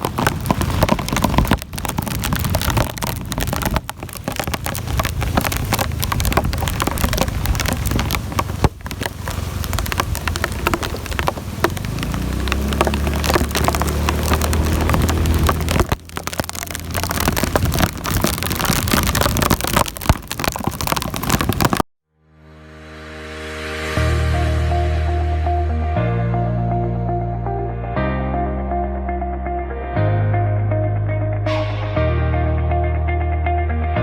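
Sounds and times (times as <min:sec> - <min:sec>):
heavy rain falling: 0:00.0 - 0:21.9
music: 0:22.2 - 0:34.0
low hum: 0:22.3 - 0:33.9.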